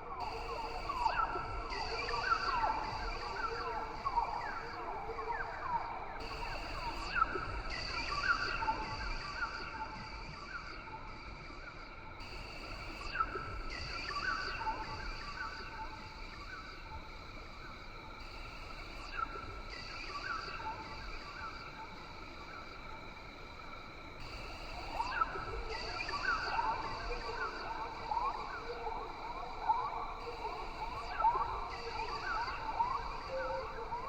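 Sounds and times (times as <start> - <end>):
high-pitched insect drone: 12.6 - 34.0.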